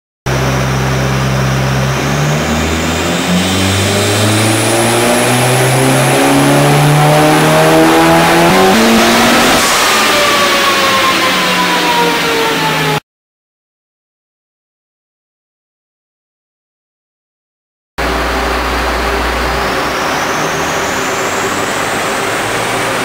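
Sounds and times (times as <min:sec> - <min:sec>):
car engine at full throttle: 0:00.3 - 0:13.0, 0:18.0 - 0:23.0.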